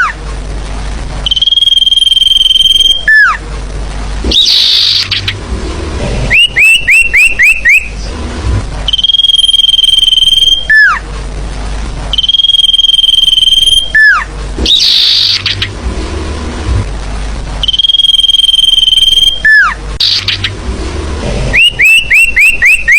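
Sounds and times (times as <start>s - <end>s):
birds singing whistled notes: 4.3s - 5.4s, 6.3s - 8.0s, 12.2s - 15.7s, 17.6s - 20.6s, 21.6s - 22.9s.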